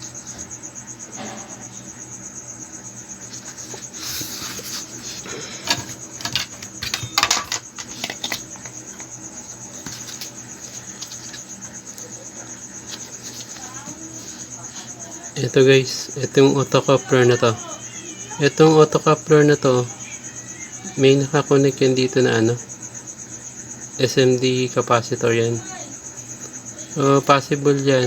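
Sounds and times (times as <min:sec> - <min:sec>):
crickets chirping: 0:00.0 - 0:28.0
handling clicks and rustles: 0:03.2 - 0:14.5.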